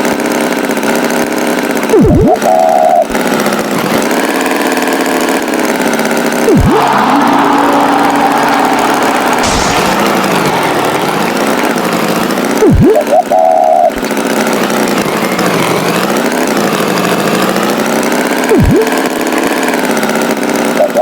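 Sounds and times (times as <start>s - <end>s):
cartoon tractor engine: 0.0s - 21.0s
swooping sound effect: 2.0s - 2.6s, 6.4s - 14.0s, 18.5s - 19.0s.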